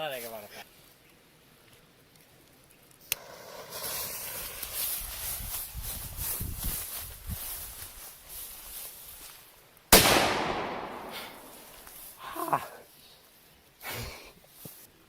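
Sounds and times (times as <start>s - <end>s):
firecracker bang echoing: 9.9s - 12.0s.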